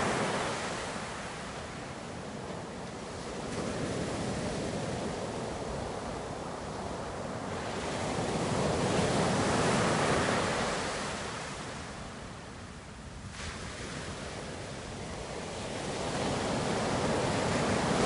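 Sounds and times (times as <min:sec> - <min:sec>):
ocean waves on shore: 0:00.0 - 0:18.0.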